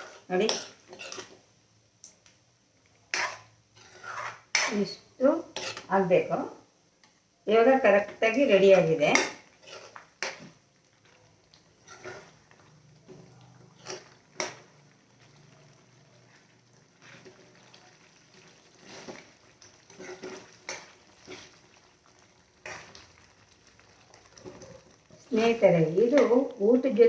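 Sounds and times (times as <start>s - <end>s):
spoon scraping cooking pan: 0.0s - 1.5s, 2.8s - 6.0s, 8.0s - 23.3s.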